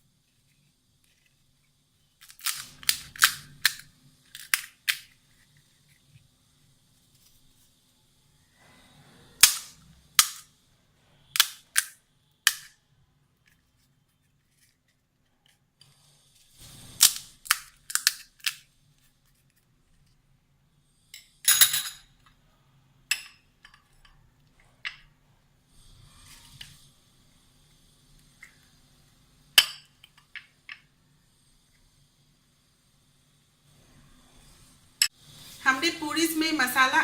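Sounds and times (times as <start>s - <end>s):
crisp shells cracking: 2.2s - 5.2s.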